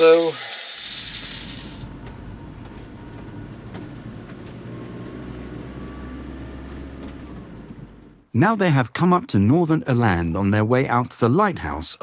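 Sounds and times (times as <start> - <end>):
vehicle driving rumble: 1.2 - 8.4.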